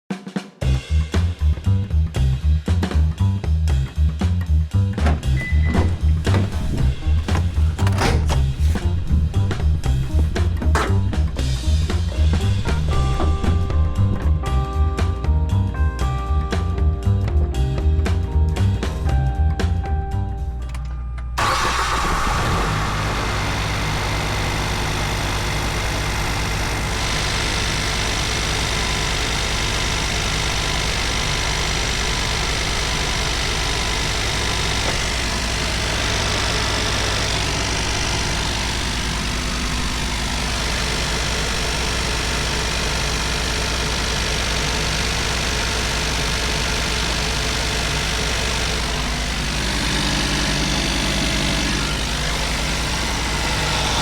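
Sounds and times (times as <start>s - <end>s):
car engine idling: 5.0s - 14.4s, 21.4s - 54.0s.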